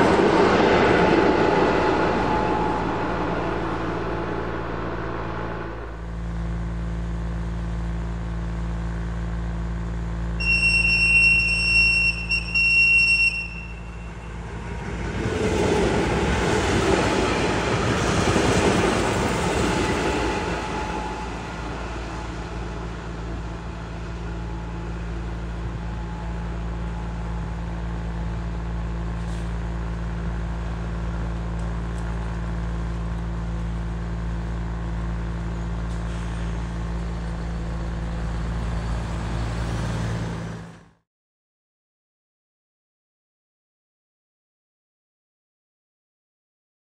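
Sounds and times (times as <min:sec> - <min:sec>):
train passing: 0:00.0 - 0:06.6, 0:10.4 - 0:31.4
steady low hum: 0:00.0 - 0:10.4, 0:13.4 - 0:38.9
loud high-pitched tone: 0:00.4 - 0:06.5, 0:10.4 - 0:14.7, 0:19.5 - 0:27.5.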